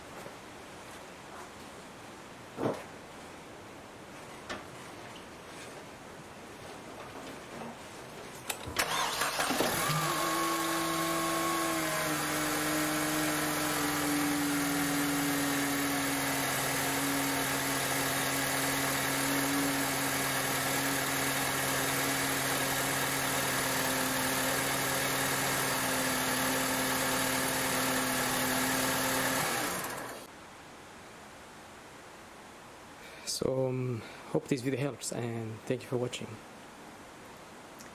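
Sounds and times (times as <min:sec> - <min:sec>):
car engine starting and idling: 0:08.5 - 0:30.3.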